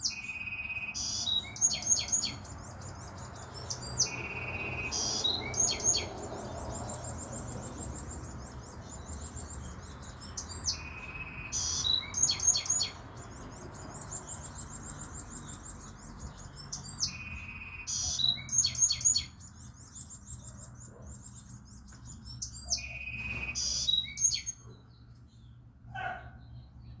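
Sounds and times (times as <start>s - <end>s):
songbird singing trills: 0.0s - 27.0s.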